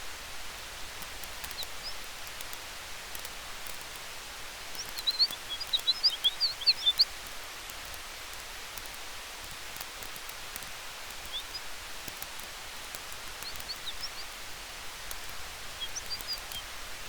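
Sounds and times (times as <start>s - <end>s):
campfire hissing and crackling: 0.0s - 17.0s
wind through trees: 0.0s - 17.0s
small bird chirping: 1.0s - 2.5s, 4.6s - 7.4s, 10.0s - 14.4s, 15.0s - 16.8s.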